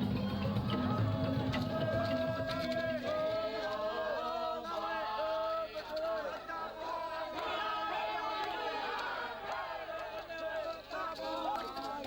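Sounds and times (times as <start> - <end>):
percussion: 0.0 - 4.2.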